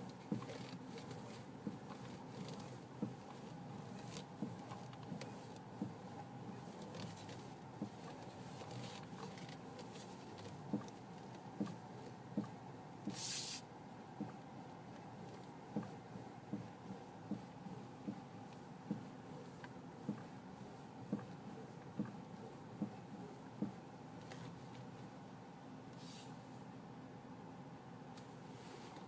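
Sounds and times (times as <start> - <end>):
steady background hum: 0.0 - 29.0
short hiss: 13.1 - 13.7.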